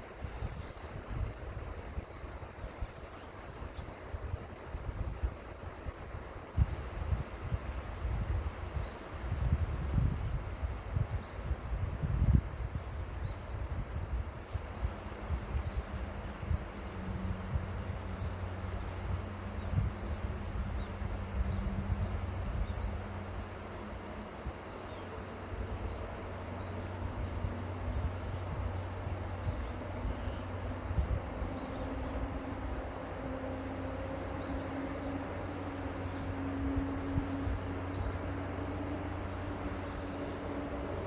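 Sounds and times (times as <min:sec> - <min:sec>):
distant engine hum: 0:12.4 - 0:41.0.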